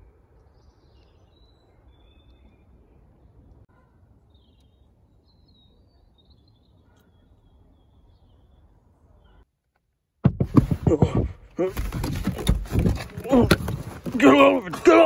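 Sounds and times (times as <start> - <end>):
faint bird chirps: 0.0 - 9.5.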